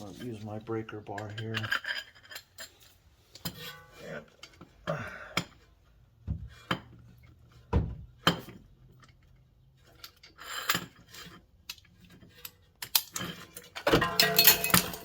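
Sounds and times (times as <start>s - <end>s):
metallic clinks and knocks: 12.3s - 15.0s.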